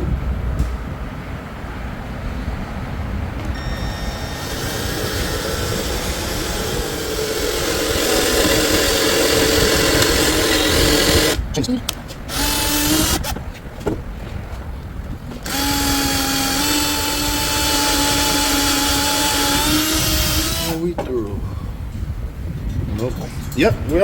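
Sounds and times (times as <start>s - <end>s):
electric drill boring steel: 3.4s - 11.4s, 12.3s - 13.4s, 15.4s - 20.8s.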